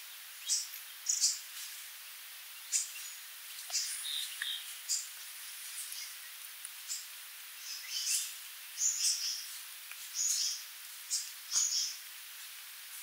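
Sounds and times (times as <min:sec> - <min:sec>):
faint hiss: 0:00.0 - 0:13.0
bird high-pitched calls: 0:02.6 - 0:05.1, 0:10.1 - 0:12.0.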